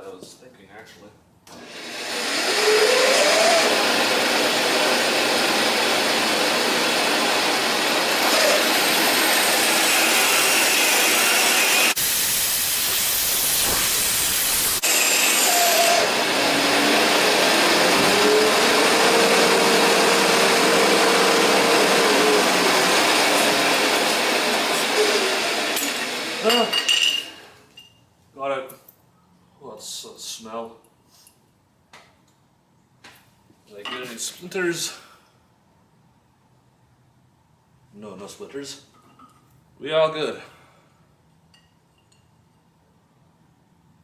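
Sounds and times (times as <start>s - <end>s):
power tool running with hissing: 1.6s - 27.5s.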